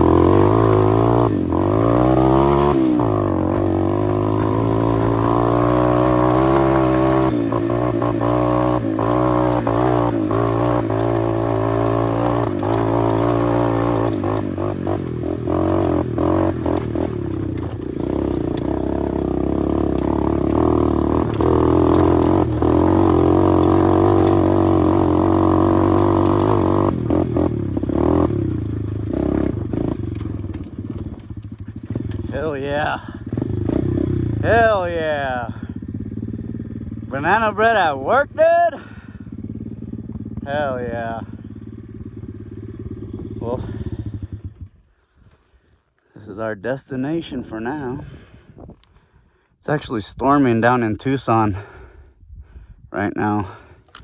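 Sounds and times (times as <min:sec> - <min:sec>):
motorbike engine running: 0:00.0 - 0:45.8.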